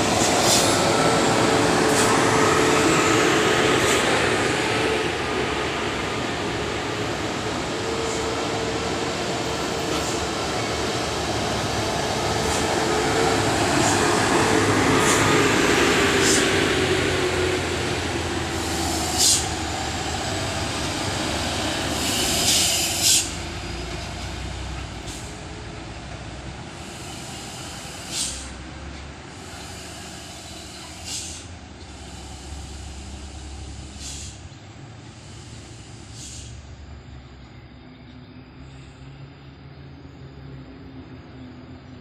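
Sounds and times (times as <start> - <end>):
air brakes hissing: 0.0 - 4.4, 9.9 - 25.4, 26.7 - 37.0
truck engine rumble: 0.0 - 37.4.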